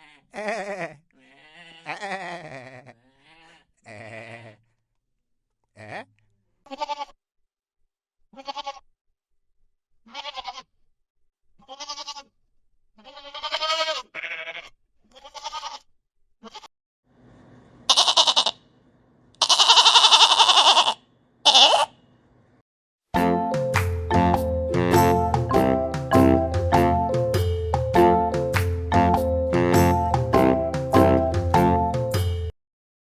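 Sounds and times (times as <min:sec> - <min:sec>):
goat bleating: 0:00.0 - 0:04.6, 0:05.8 - 0:07.2, 0:08.4 - 0:08.9, 0:10.1 - 0:10.7, 0:11.6 - 0:12.3, 0:13.0 - 0:16.7, 0:17.9 - 0:18.6, 0:19.4 - 0:21.9.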